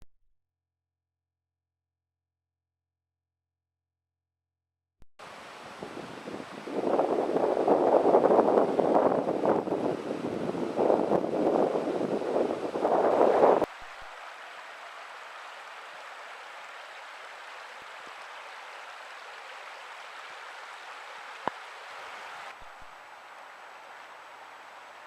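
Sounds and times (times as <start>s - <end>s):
river water flowing: 5.2s - 25.0s.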